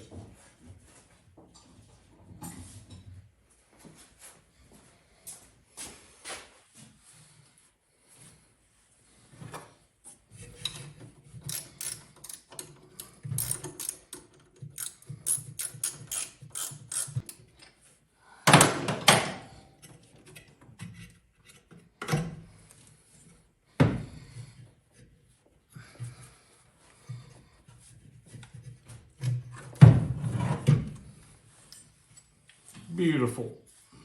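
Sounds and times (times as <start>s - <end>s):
tool clatter: 10.4s - 17.7s
ratchet wrench clicking: 11.4s - 12.7s, 13.3s - 17.4s.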